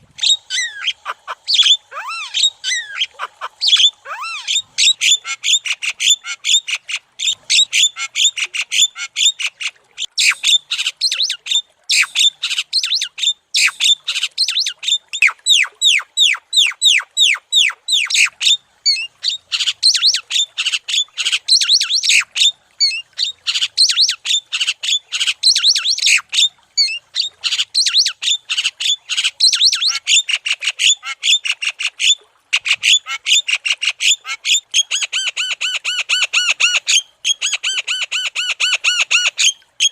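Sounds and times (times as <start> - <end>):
myna bird chattering song: 0.2 - 8.5, 27.5 - 30.0.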